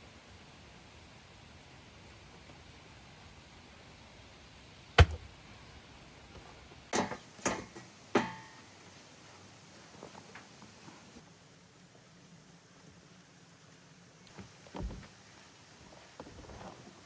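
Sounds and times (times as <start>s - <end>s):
sharp knocks: 5.0s - 5.3s.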